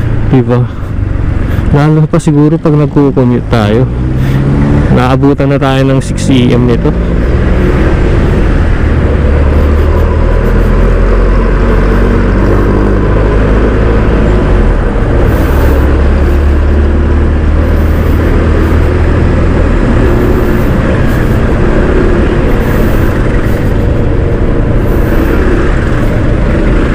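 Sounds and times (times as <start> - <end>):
wind and road noise: 0.0 - 26.9
scooter engine running: 7.1 - 26.9.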